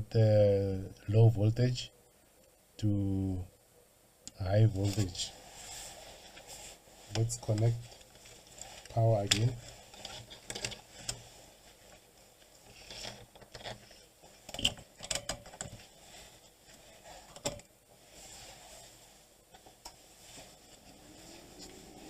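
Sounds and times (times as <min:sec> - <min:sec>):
hands handling small hard parts: 0:07.1 - 0:11.2.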